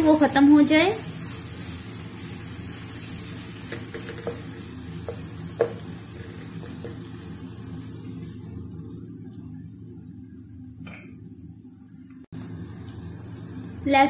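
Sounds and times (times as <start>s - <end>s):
food sizzling in ghee: 0.0s - 14.0s
spatula knocking against pan: 5.1s - 5.8s.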